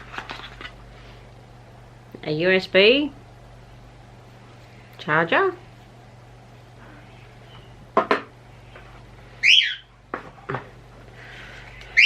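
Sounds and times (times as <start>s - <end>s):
bird whistling calls: 9.4s - 9.9s.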